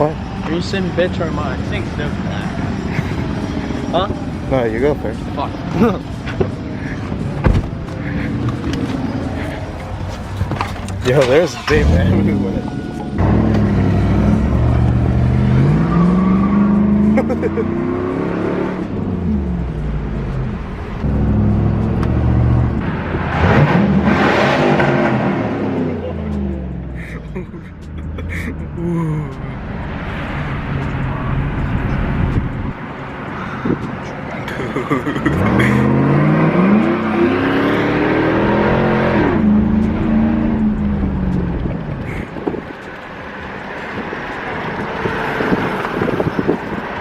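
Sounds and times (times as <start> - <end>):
car engine revving: 0.0 - 47.0.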